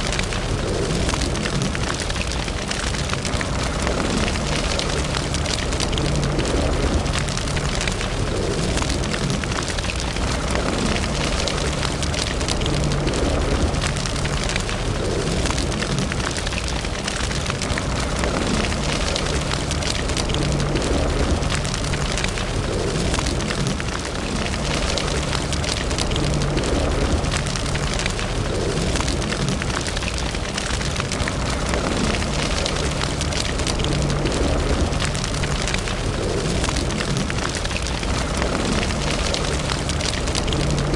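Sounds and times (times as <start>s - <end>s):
low steady rumble: 0.0s - 40.9s
wood fire crackling and popping: 0.0s - 40.9s.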